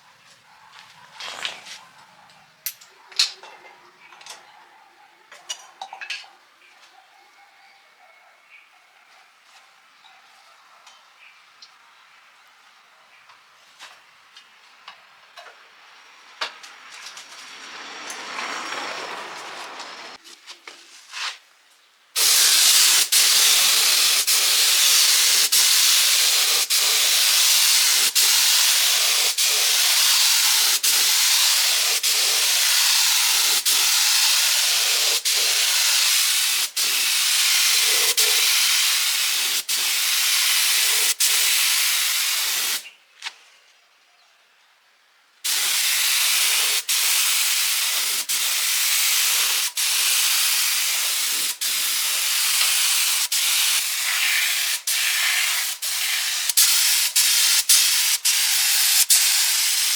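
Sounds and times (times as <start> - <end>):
steady loud hiss: 22.2 - 42.9, 45.5 - 59.9.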